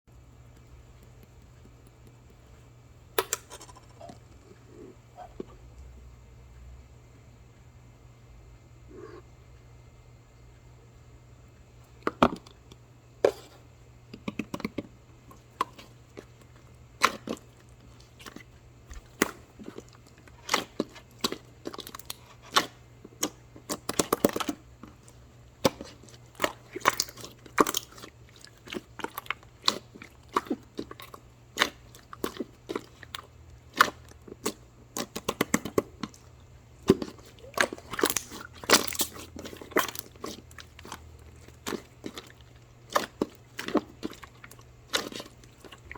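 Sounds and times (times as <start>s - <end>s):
crisp crunching and clicking: 17.0s - 45.9s.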